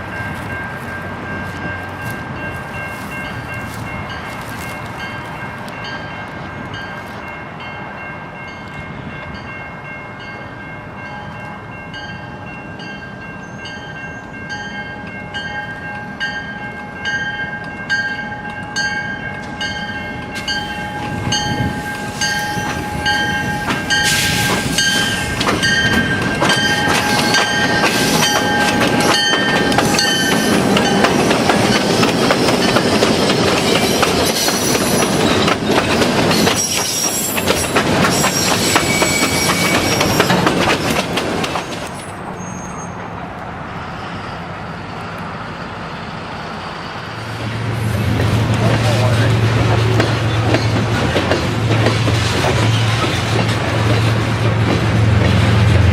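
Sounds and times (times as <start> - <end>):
ringing bell: 0.0 - 31.1
train rumble and wheel clatter: 0.0 - 55.9.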